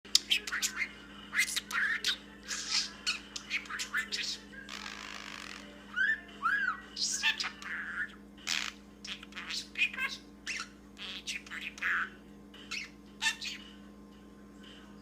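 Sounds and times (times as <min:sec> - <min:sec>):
budgerigar chattering: 0:07.0 - 0:12.1.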